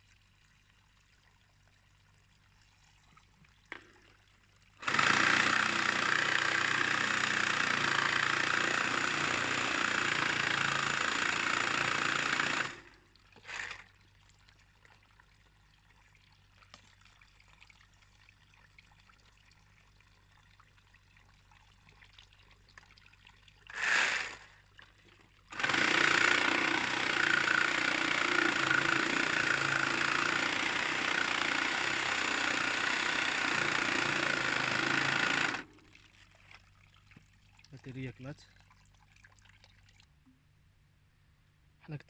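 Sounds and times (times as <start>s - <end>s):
cordless power tool cutting pipe: 4.8s - 13.9s, 23.7s - 24.6s, 25.5s - 35.7s.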